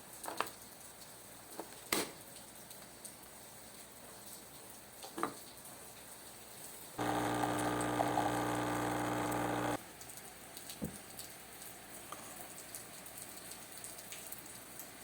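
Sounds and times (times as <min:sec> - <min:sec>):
appliance motor humming: 0:07.0 - 0:09.8.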